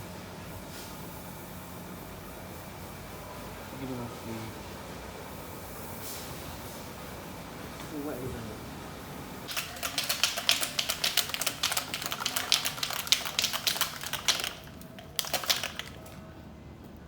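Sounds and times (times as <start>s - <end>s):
rapid irregular clicking: 9.5s - 16.3s.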